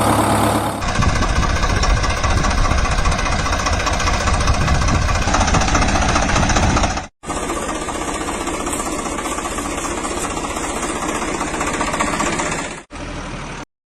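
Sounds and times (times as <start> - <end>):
vehicle engine knocking: 0.0 - 12.9.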